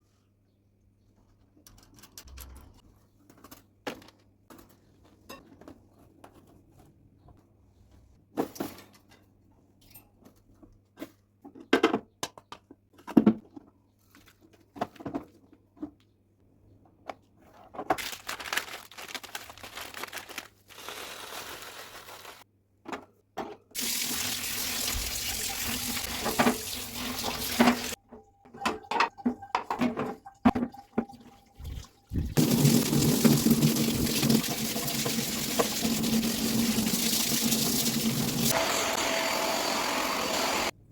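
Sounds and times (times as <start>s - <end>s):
tap water running over cage: 23.8s - 28.0s, 31.6s - 38.5s.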